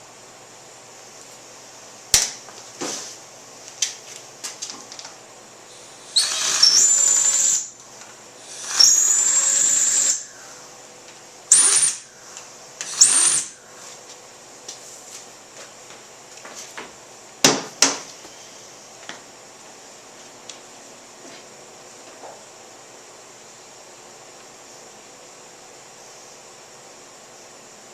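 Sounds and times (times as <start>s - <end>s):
power drill whining: 5.8s - 7.7s, 8.4s - 10.3s, 11.5s - 12.1s, 12.8s - 13.6s.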